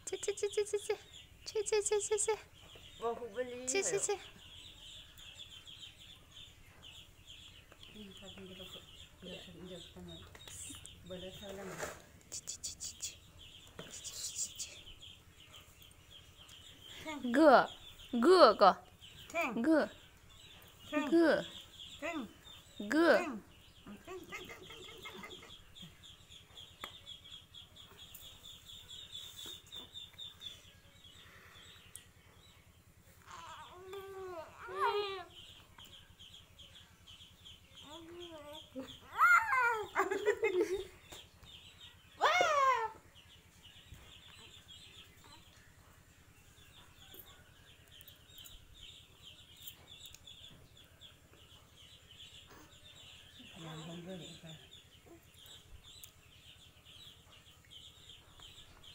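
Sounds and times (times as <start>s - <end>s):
birds chirping: 0.0s - 58.9s.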